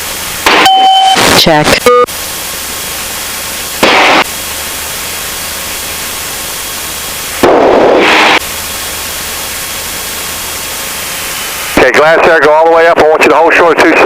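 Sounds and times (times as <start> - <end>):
radio noise bursts: 0.4 - 2.1, 3.8 - 4.2, 11.6 - 14.0
radio static hiss: 0.5 - 14.0.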